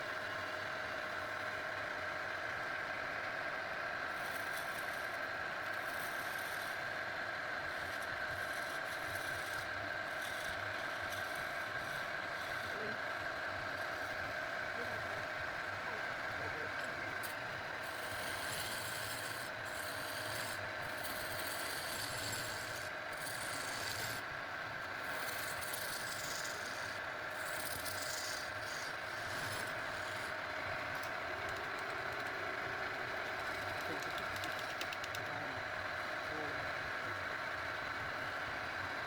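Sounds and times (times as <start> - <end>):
power tool motor: 17.2 - 24.2, 25.1 - 30.3.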